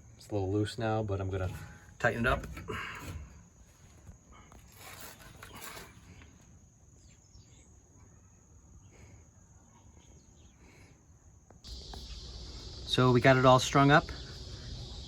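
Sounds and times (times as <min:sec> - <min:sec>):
soft handling and scraping: 0:01.3 - 0:06.6
high-pitched insect drone: 0:11.6 - 0:15.0.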